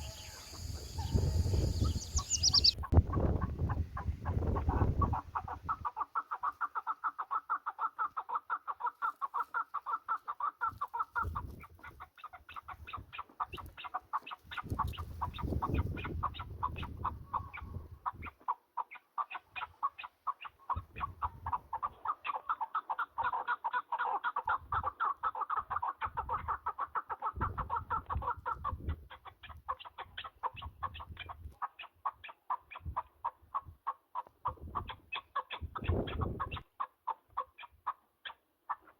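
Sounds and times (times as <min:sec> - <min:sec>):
partridges calling: 0:00.0 - 0:05.1.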